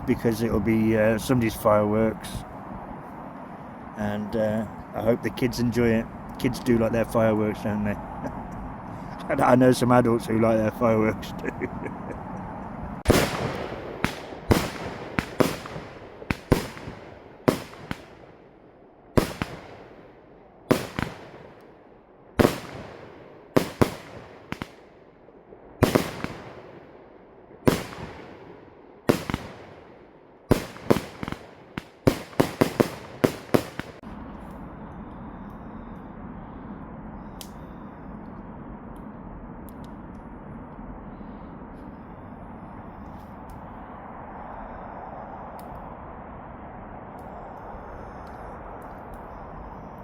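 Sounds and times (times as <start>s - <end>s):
fireworks bangs with echo: 13.0s - 18.4s, 19.2s - 21.6s, 22.4s - 24.9s, 25.8s - 26.9s, 27.6s - 34.0s.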